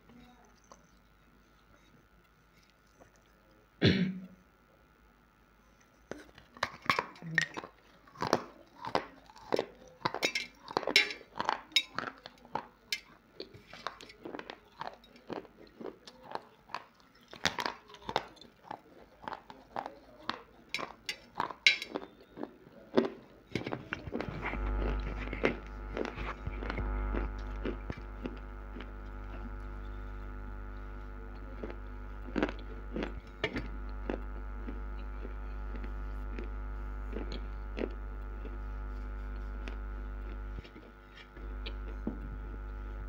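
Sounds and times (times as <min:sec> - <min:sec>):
steady hum: 0:23.4 - 0:43.0.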